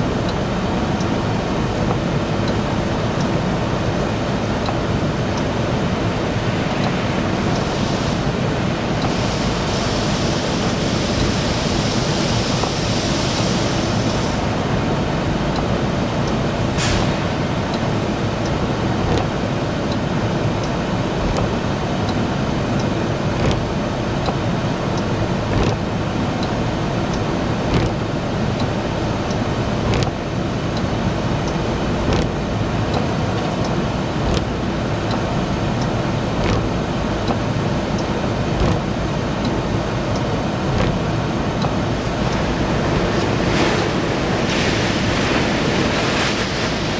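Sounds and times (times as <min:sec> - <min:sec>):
truck wash machinery: 0:00.0 - 0:46.9
high-pressure water spray: 0:06.6 - 0:14.5.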